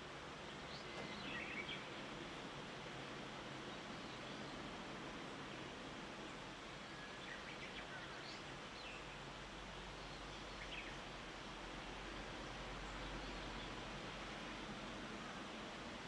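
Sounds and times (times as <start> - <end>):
faint bird chirps: 0.5 - 2.5, 6.3 - 9.2.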